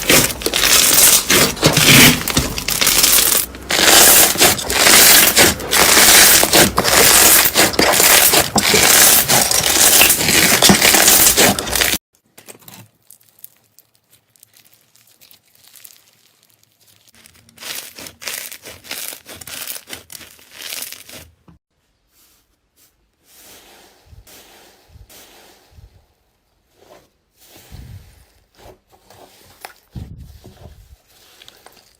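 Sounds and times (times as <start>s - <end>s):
slime crackling and squishing: 0.0s - 12.0s, 12.6s - 21.4s.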